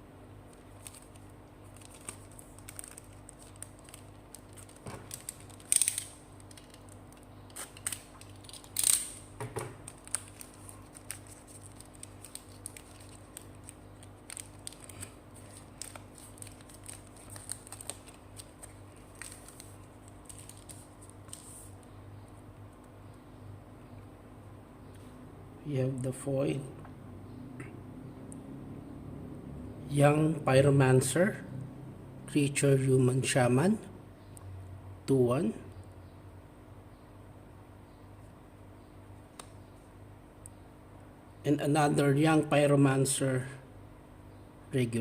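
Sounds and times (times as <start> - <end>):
cards and packaging rustling: 0.6 - 21.7.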